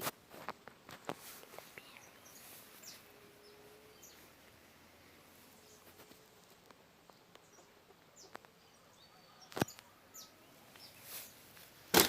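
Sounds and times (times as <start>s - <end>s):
faint bird chirps: 1.6s - 6.4s, 7.0s - 11.5s.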